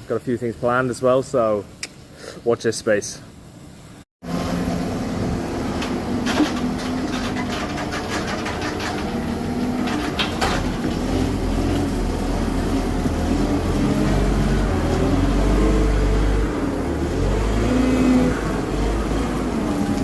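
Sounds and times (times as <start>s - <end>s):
metallic knocks and clanks: 5.8s - 11.1s.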